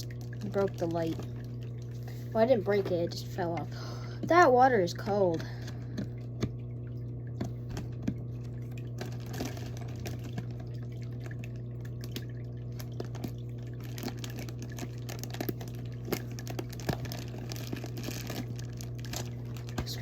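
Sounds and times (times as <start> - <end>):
plastic bag crinkling: 0.0 - 2.3, 7.7 - 11.2, 12.7 - 20.0
steady low hum: 0.0 - 20.0
water splashing and dripping: 3.5 - 20.0.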